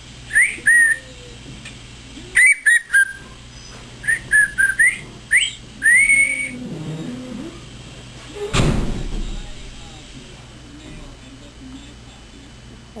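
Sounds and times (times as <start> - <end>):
parrot whistling: 0.3 - 1.1, 2.4 - 3.3, 4.0 - 6.6.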